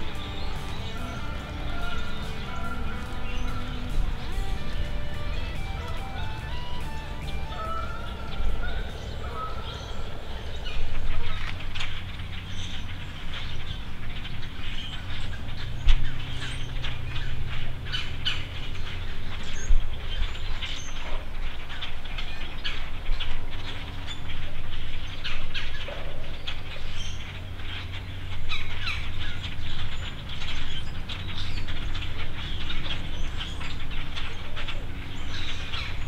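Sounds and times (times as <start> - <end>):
steady low hum: 0.0 - 16.3
small birds chirping: 0.0 - 36.0.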